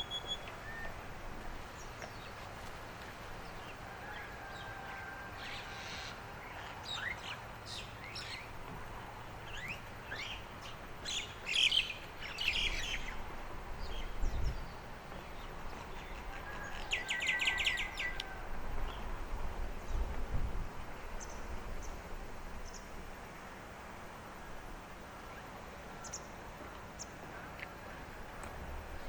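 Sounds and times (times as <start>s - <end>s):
songbirds singing and chirping: 0.0s - 19.2s.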